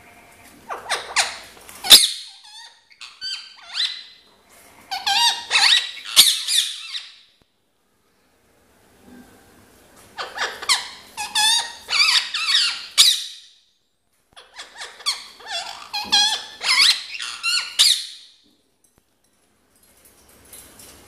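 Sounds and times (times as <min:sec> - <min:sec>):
parrot squeaky chatter: 0:00.7 - 0:04.2, 0:04.9 - 0:07.2, 0:10.2 - 0:13.5, 0:14.4 - 0:18.3.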